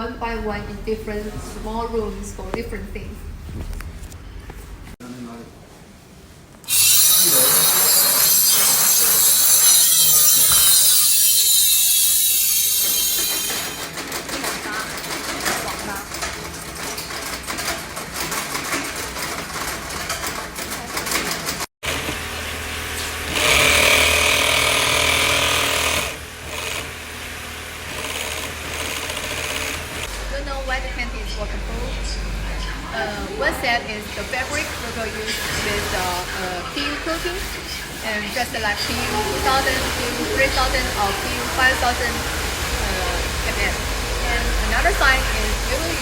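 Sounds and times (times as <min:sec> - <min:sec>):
loud hissing machine noise: 0:06.6 - 0:13.9, 0:21.8 - 0:46.0.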